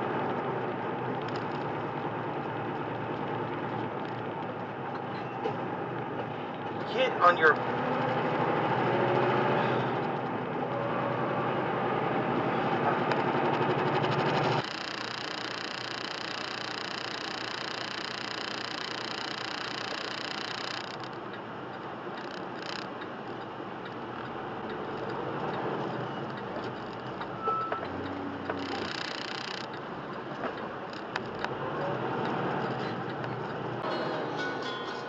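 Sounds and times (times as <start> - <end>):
vehicle driving noise: 0.0 - 35.0
sharp clicks: 1.2 - 1.7, 14.4 - 31.6.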